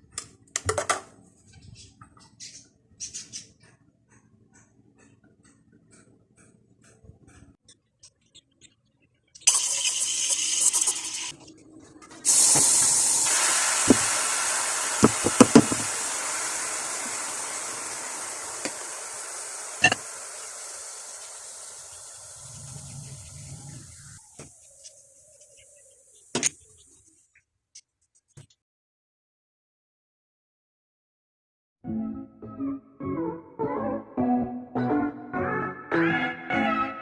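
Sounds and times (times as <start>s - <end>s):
espresso steam wand hissing: 9.5s - 11.3s, 12.3s - 24.2s.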